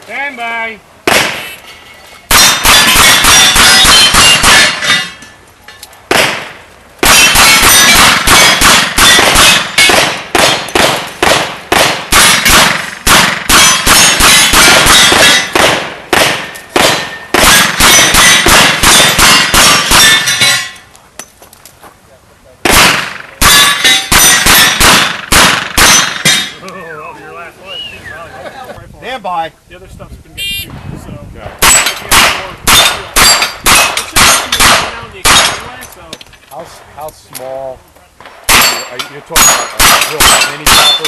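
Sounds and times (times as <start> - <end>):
steel plate ringing: 1.7 - 5.4, 12.2 - 15.6, 16.4 - 20.9, 23.4 - 24.8, 38.5 - 41.0.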